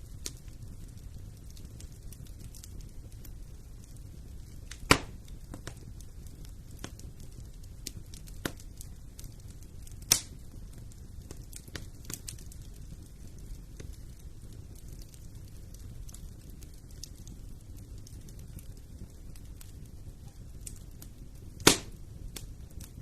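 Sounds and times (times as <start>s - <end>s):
fire crackling in fireplace: 0.0s - 23.0s
sharp loud fire pops: 4.8s - 5.2s, 21.6s - 22.0s.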